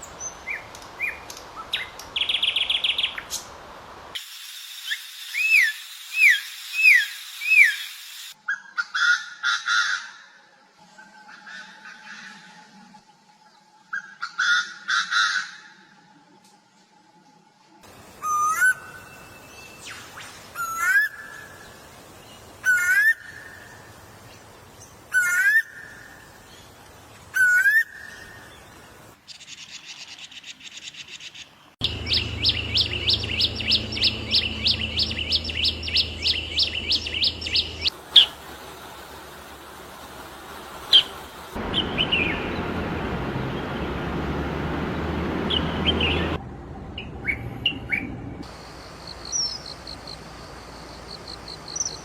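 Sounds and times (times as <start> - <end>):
steady hiss: 0.0 - 8.4, 17.8 - 27.3, 31.9 - 43.0, 48.5 - 52.0
birds calling and singing: 24.3 - 38.4, 40.7 - 46.4, 49.2 - 52.0.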